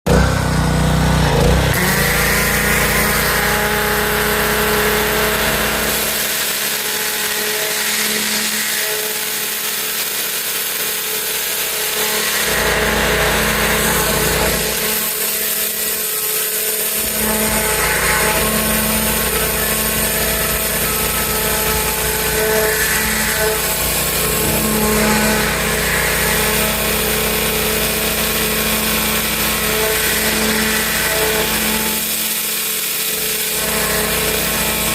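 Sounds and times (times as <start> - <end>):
pressure washer motor drone: 0.1 - 34.9.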